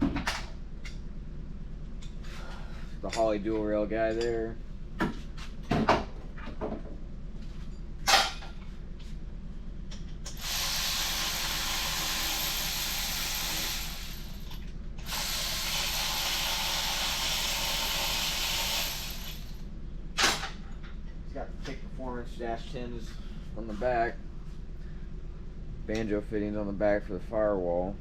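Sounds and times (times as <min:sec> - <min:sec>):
tool hissing whir: 0:10.3 - 0:19.6.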